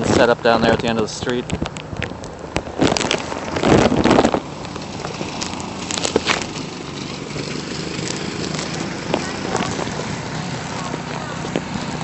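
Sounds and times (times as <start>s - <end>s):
wind noise on microphone: 0.0s - 12.0s
boots crunching through snow: 7.6s - 12.0s.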